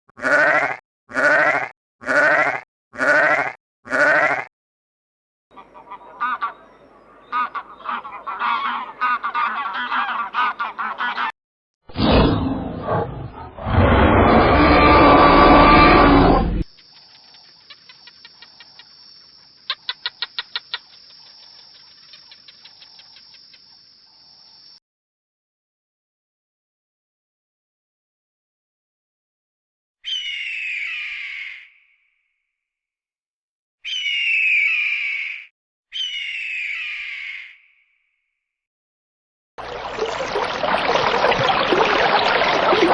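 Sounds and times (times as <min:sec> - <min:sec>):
sheep bleating: 0:00.2 - 0:04.5
loud animal call: 0:12.8 - 0:16.6
bird chirping: 0:16.8 - 0:23.8.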